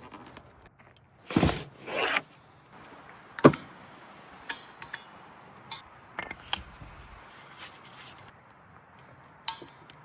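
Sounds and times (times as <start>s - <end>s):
rustling scrapes: 1.2s - 2.3s, 6.6s - 8.3s.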